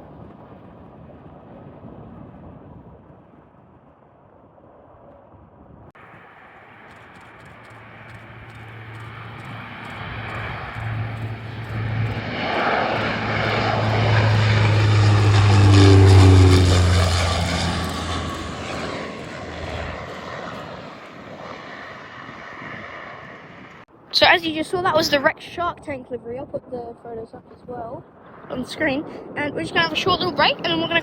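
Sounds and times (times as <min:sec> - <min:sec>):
airliner passing overhead: 0:06.0 - 0:23.9, 0:28.1 - 0:31.0.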